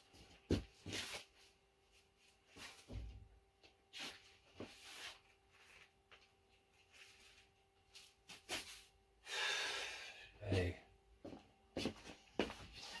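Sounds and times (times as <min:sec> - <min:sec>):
soft rustles: 0:00.2 - 0:09.0.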